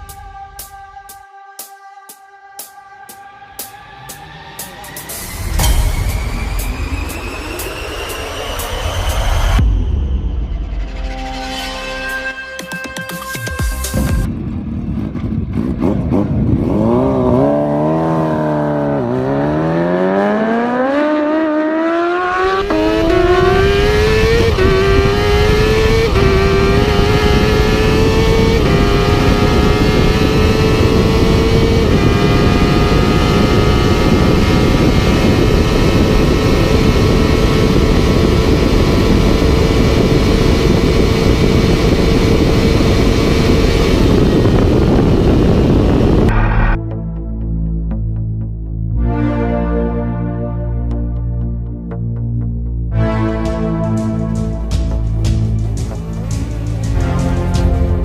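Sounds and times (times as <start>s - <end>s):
motorcycle engine at full throttle: 14.2s - 46.8s.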